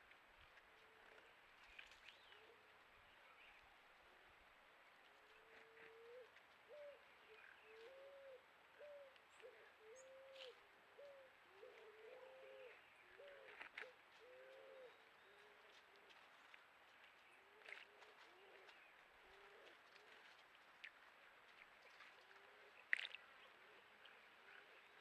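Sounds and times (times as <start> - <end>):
dove cooing: 5.6 - 13.6, 14.2 - 15.6, 18.3 - 20.1.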